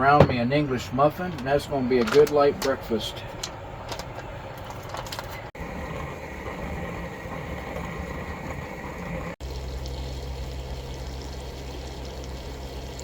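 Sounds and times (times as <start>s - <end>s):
coffee percolator bubbling: 5.6s - 13.0s.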